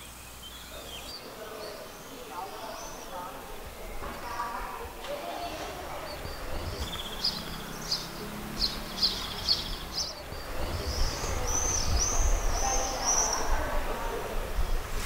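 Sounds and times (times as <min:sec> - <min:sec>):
low outdoor rumble: 0:00.0 - 0:15.0
small songbird singing: 0:00.0 - 0:15.0.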